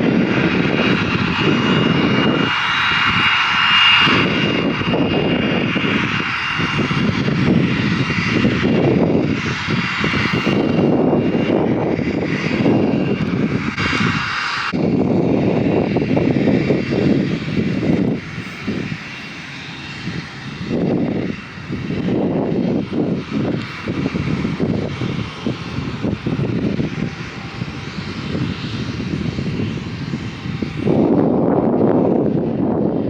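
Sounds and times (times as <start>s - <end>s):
airliner engines running: 0.0s - 33.0s
wide rushing noise: 0.0s - 33.0s
wind buffeting microphone: 0.0s - 33.0s.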